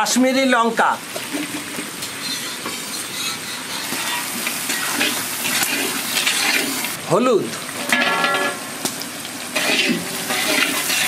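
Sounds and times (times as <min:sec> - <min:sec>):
vegetables sizzling in hot oil: 0:00.0 - 0:11.0
spatula stirring and scraping: 0:01.4 - 0:07.0, 0:09.6 - 0:11.0.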